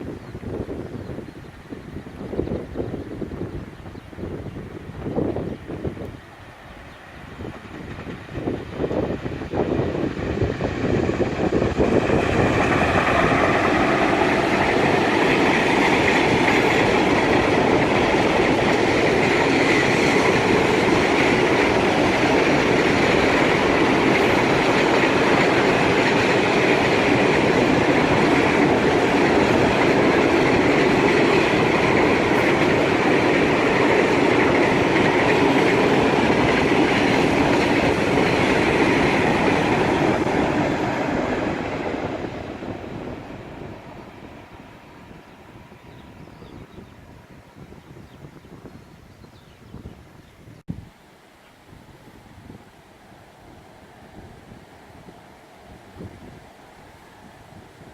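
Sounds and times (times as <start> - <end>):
freight train wheels rolling: 4.4 - 48.7.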